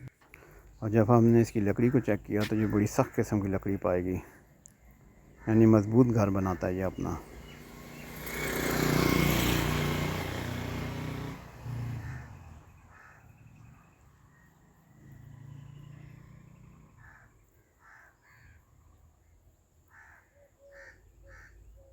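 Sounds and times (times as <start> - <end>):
vehicle engine running: 7.0 - 12.7.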